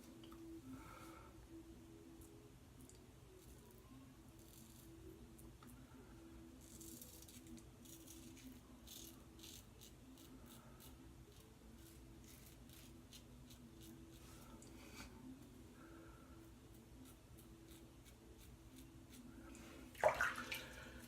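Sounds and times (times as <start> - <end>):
faint low hum: 0.0 - 21.0
razor scraping stubble: 6.6 - 14.5.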